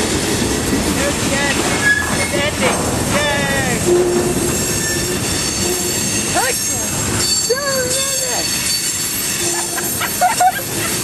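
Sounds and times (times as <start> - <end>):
train wheels rumbling on rails: 0.0 - 11.0
train wheel squeals: 1.6 - 2.4, 3.8 - 11.0.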